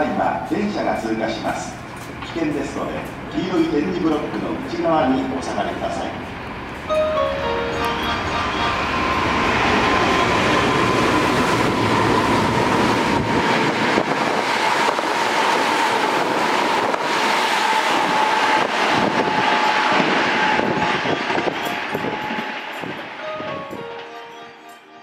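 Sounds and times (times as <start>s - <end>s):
thin train whine: 0.0s - 25.0s
train rushing past: 0.0s - 25.0s.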